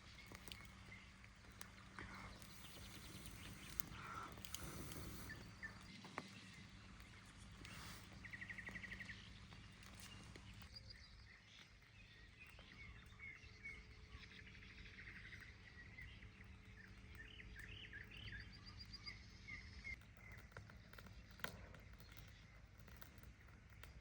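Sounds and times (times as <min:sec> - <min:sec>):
low steady rumble: 0:00.0 - 0:24.0
small birds chirping and trilling: 0:00.0 - 0:24.0.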